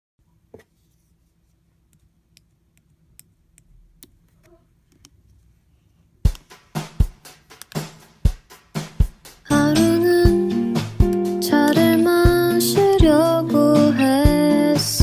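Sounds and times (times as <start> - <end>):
plucked guitar music with beat: 9.5 - 15.0.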